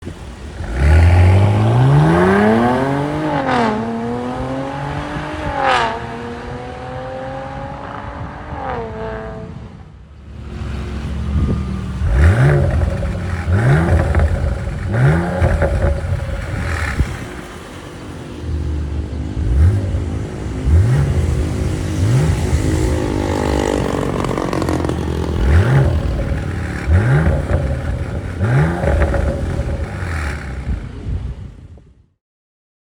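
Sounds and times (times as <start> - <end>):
car engine revving: 0.0 - 31.3.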